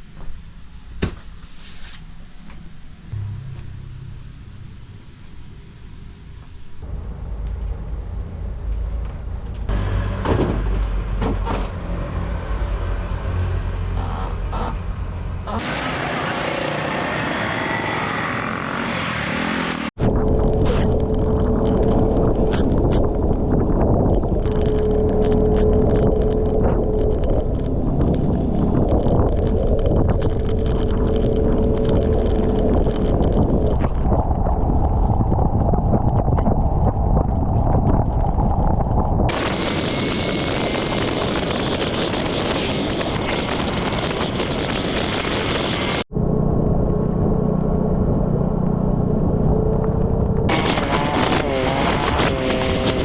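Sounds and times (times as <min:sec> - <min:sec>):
scooter engine running: 0:15.6 - 0:19.9, 0:39.3 - 0:46.0, 0:50.5 - 0:53.0
wind rushing over microphone: 0:19.8 - 0:53.0.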